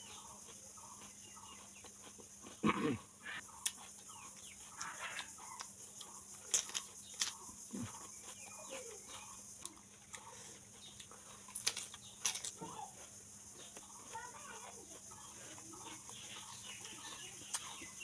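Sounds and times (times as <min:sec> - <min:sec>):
cucumber crunching: 0:00.0 - 0:18.0
mouth sounds: 0:02.5 - 0:03.4, 0:07.7 - 0:09.8.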